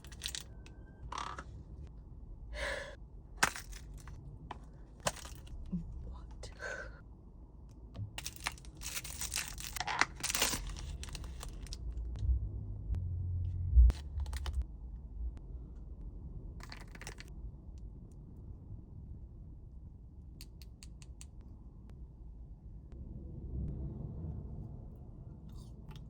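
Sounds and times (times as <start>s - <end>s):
candy packaging torn and crinkled: 8.6s - 11.9s.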